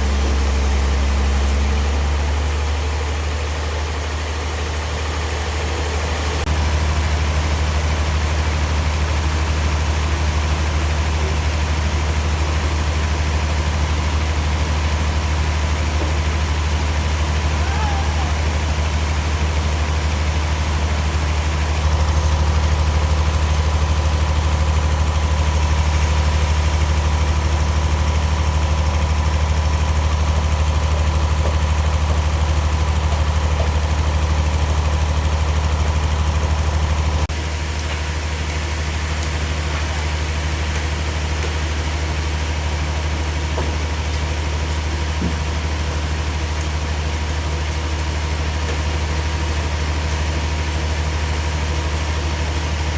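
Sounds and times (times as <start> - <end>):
thin high whine: 0.0 - 2.0
heavy machine engine humming: 0.0 - 52.9.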